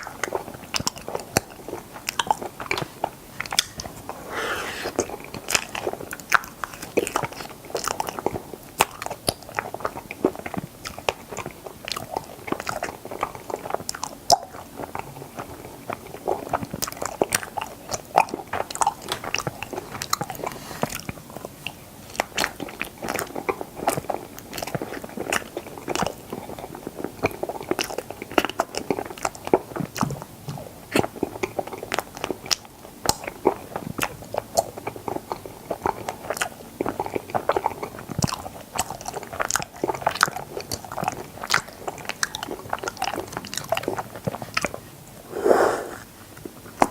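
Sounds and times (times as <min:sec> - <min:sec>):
wet mouth sounds: 0:04.1 - 0:05.0, 0:45.3 - 0:46.1.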